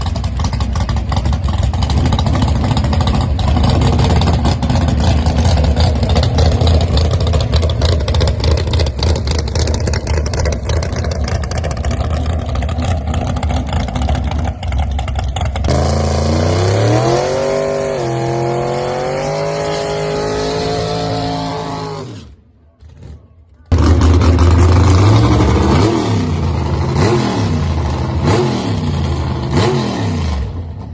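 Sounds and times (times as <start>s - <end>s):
drag car engine rumbling: 0.0s - 30.9s
car accelerating hard: 15.7s - 22.4s.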